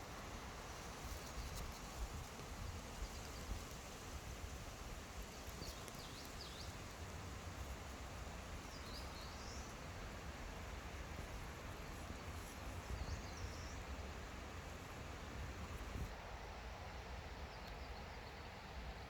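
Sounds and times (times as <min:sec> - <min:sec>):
steady hiss: 0:00.0 - 0:19.0
small bird chirping: 0:05.3 - 0:06.8, 0:08.6 - 0:09.8, 0:11.9 - 0:14.4.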